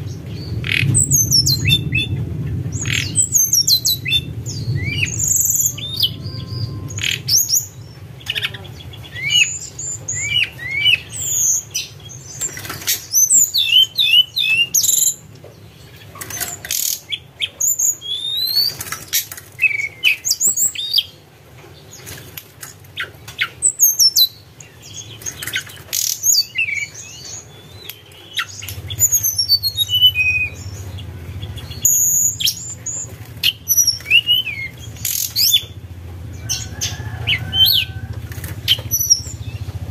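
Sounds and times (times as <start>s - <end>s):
flycatcher singing high chirps: 2.8s - 7.8s.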